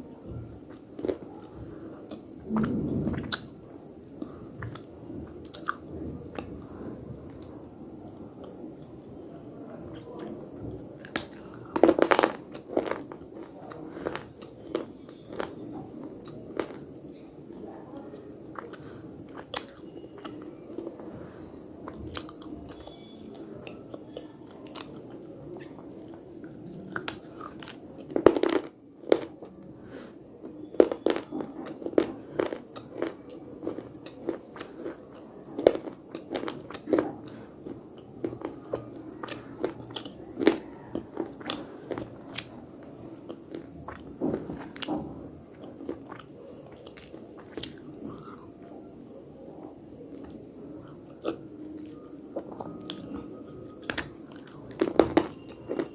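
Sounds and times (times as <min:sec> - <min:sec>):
chewing slate crunchy snaps: 0:04.2 - 0:05.8, 0:30.8 - 0:42.5, 0:45.6 - 0:48.7.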